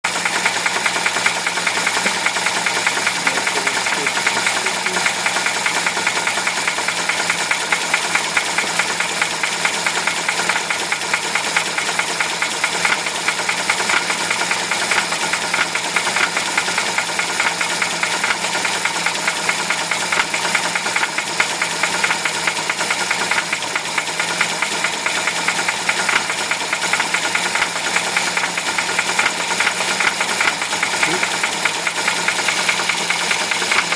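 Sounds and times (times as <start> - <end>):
petrol engine running: 0.0 - 33.9
rapid knock inside engine: 0.0 - 33.9.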